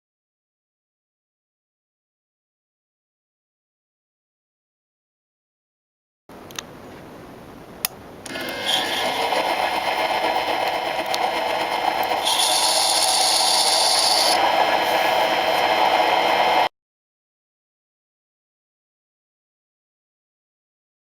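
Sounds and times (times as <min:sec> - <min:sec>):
model diesel engine running fast: 0:08.4 - 0:16.7.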